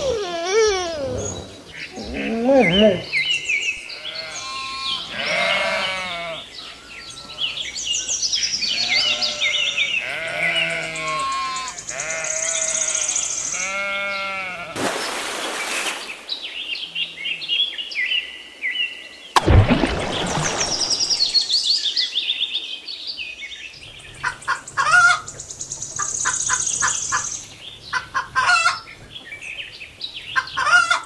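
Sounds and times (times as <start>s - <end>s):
sheep bleating: 4.0s - 6.5s, 8.7s - 14.8s.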